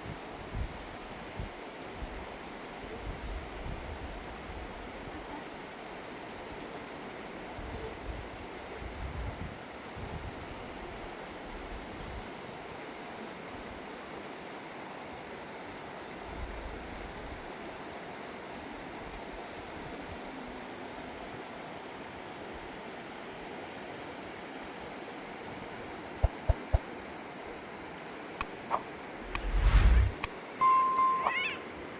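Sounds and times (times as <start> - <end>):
crickets chirping: 12.5 - 31.9
steady rushing background noise: 28.7 - 30.3
loud whoosh: 29.2 - 30.3.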